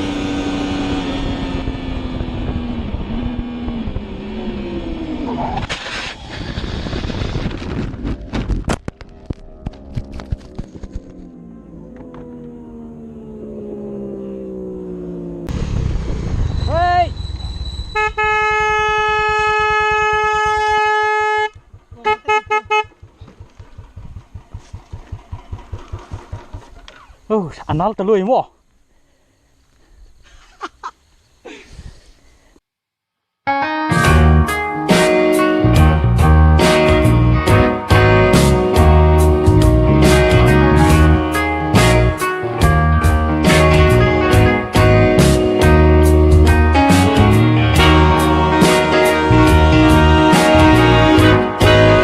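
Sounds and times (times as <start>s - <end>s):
motorcycle engine running: 0.0s - 27.2s, 35.7s - 52.0s
low engine rumble: 6.2s - 27.3s
vehicle horn blasts: 17.9s - 23.0s, 47.8s - 52.0s.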